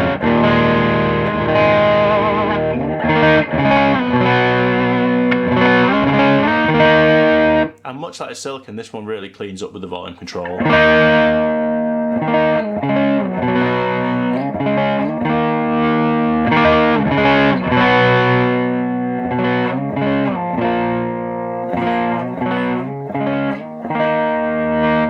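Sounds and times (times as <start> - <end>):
overdriven electric guitar chords: 0.0 - 7.8, 10.6 - 25.0.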